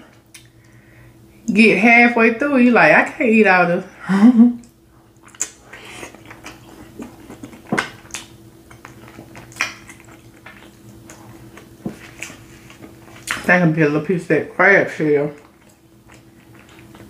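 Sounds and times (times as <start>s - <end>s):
faint steady hum: 0.0s - 17.0s
wet chewing mouth smacks: 4.6s - 13.5s.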